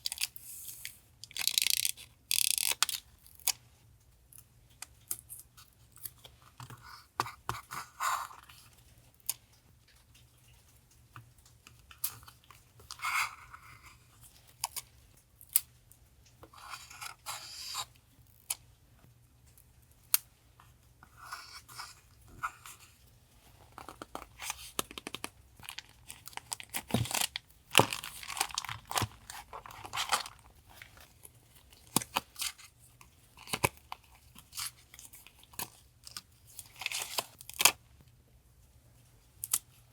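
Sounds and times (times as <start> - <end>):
paper rustling and crinkling: 21.3 - 32.8.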